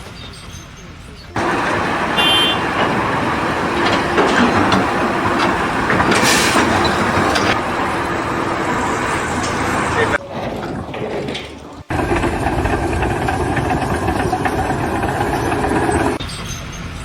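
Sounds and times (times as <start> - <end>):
heavy machinery rumbling and rattling: 0.0 - 17.0.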